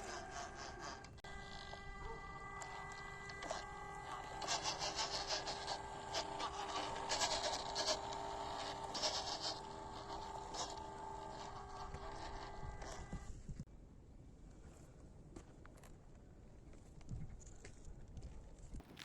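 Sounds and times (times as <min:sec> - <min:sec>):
small electric motor whining: 0:00.0 - 0:13.6
tyres crunching over dirt and rock: 0:18.8 - 0:19.0.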